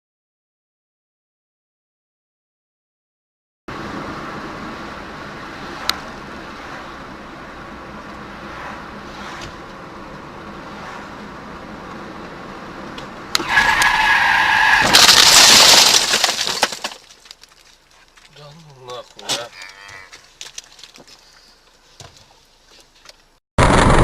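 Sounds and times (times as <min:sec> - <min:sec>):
harsh skidding or crashing: 0:03.7 - 0:17.4, 0:23.6 - 0:24.0
brakes squealing: 0:03.7 - 0:23.4
car road noise: 0:03.7 - 0:24.0.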